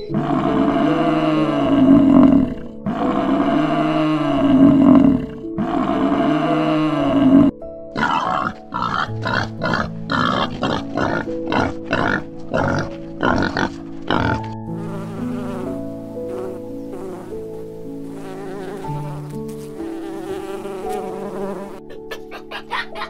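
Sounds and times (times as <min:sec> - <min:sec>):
buffalo lowing: 0:00.0 - 0:20.8
background music: 0:00.0 - 0:23.0
wild boar grunting: 0:00.1 - 0:14.6.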